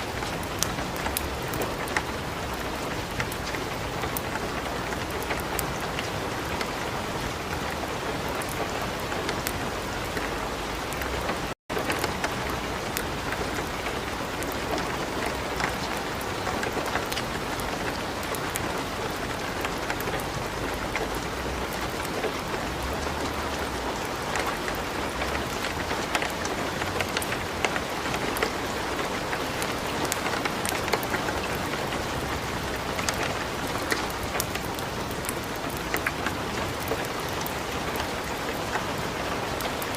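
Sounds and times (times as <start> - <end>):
wood fire crackling: 0.0 - 9.6, 10.9 - 39.9.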